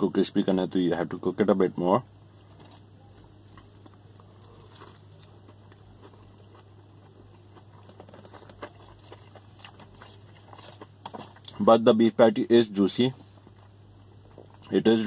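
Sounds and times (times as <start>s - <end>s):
person chewing: 2.4s - 11.6s, 13.4s - 14.7s.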